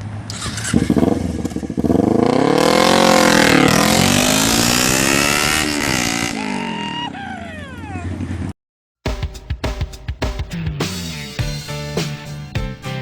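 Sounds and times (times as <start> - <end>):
motorcycle engine accelerating: 0.0 - 6.8.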